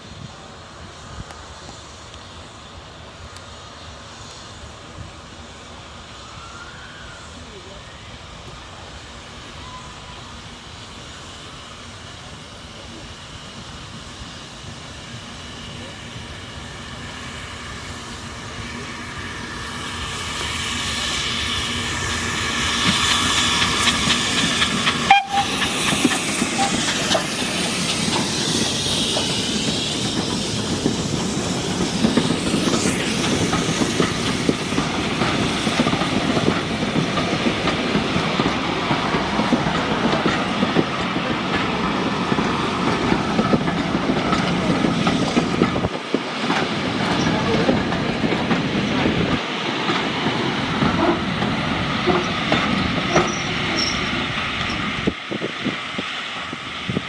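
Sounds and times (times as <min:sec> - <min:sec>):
steam hiss: 0:00.0 - 0:57.0
train wheels clattering over rails: 0:14.6 - 0:57.0.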